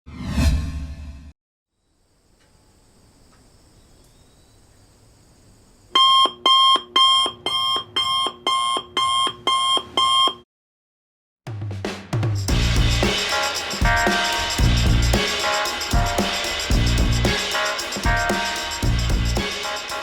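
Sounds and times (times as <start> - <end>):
electronic alarm beeping: 6.0 - 10.4.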